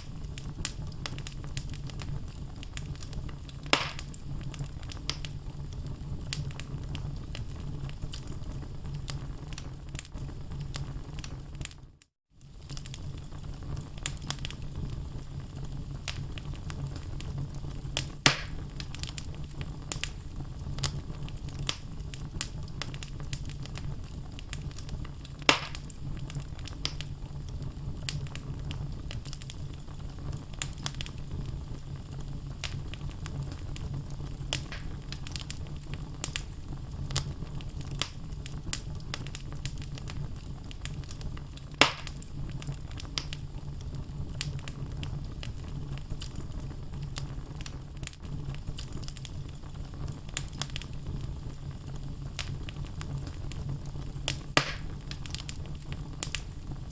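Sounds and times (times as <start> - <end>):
loud fire pops: 0.0 - 11.8, 12.4 - 56.9
logs crackling in fireplace: 0.0 - 56.9
low fire rumble: 0.0 - 56.9.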